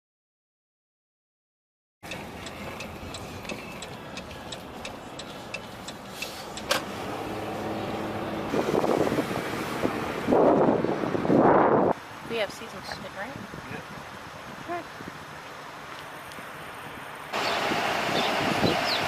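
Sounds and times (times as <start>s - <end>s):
light regular ticking: 2.0s - 6.8s
vehicle running: 2.0s - 13.4s, 14.7s - 19.0s.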